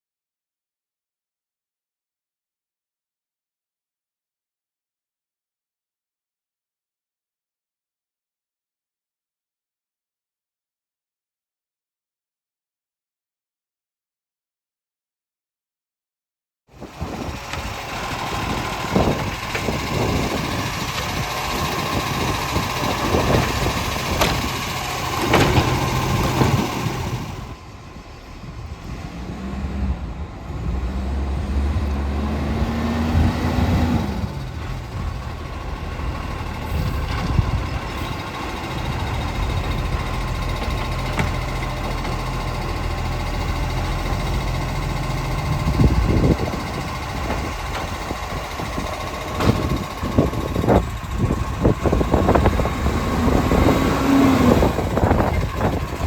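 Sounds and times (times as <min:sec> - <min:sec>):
garbage truck engine revving: 0:16.8 - 0:56.0.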